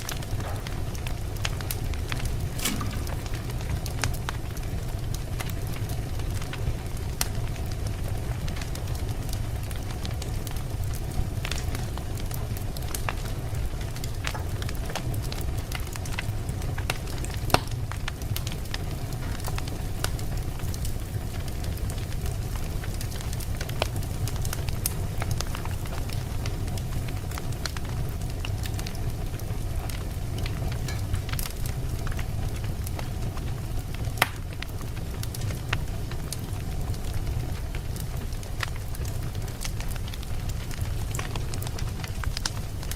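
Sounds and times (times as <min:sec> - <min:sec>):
campfire burning rumble: 0:00.0 - 0:42.9
crackles and pops of burning wood: 0:00.0 - 0:42.9.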